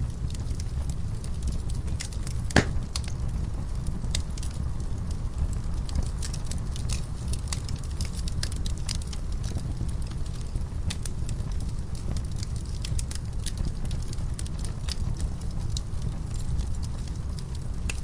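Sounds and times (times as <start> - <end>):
wood fire crackling: 0.0 - 18.0
loud pop of fire: 2.4 - 3.2.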